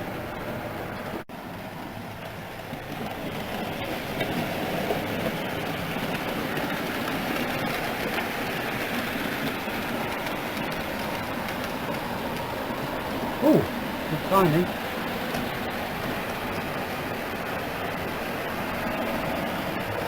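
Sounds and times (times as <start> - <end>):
wheels rolling on rail: 0.0 - 13.2.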